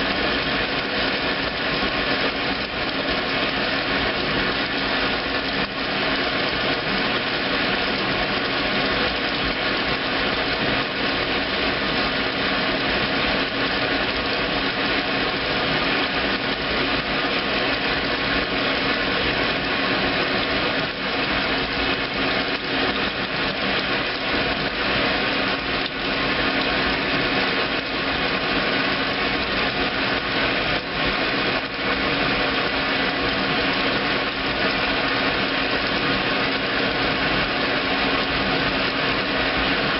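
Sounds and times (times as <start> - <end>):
washing machine motor humming: 0.0 - 39.9.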